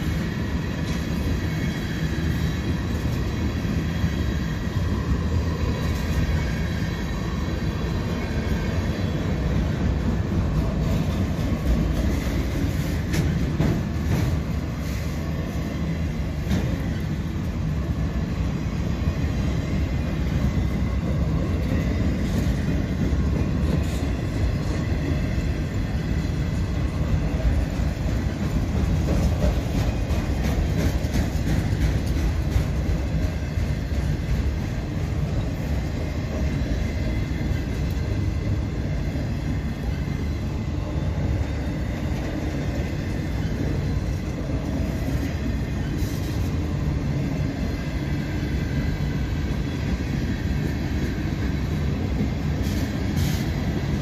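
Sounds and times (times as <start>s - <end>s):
freight train wheels rumbling: 0.0s - 54.0s
wheels clicking over rail joints: 27.4s - 34.7s.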